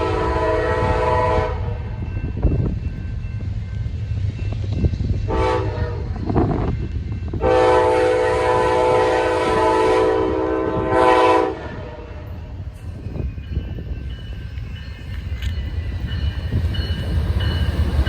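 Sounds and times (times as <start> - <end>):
locomotive air horn: 0.0 - 1.8, 5.3 - 6.3, 7.4 - 12.4
low rumble of passing train: 0.0 - 18.0.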